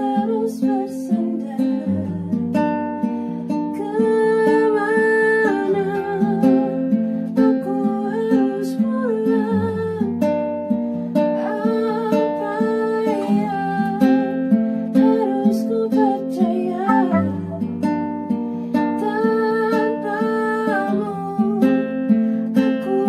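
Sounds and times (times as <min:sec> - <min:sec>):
acoustic guitar chords: 0:16.7 - 0:18.7
person singing: 0:16.8 - 0:17.8
low bass note: 0:16.9 - 0:17.7.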